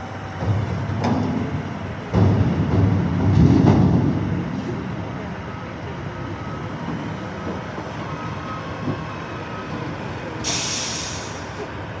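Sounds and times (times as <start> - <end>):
loud air hiss burst: 10.4 - 11.5.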